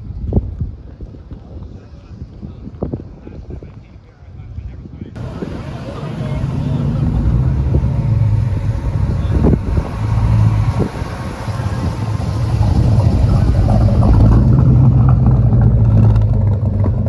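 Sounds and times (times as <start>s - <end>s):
cars driving slowly past: 5.2s - 17.0s.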